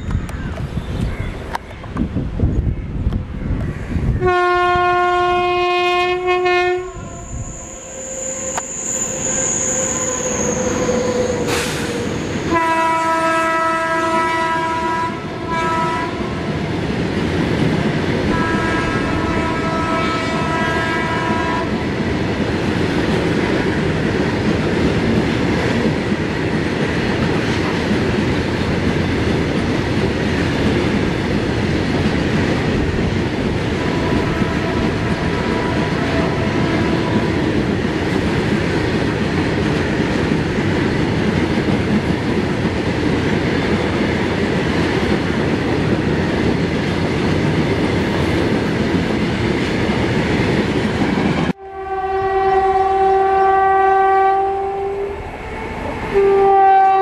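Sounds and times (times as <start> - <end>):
locomotive horn blowing: 4.2 - 16.3, 18.3 - 21.7, 33.8 - 37.4, 51.6 - 57.0.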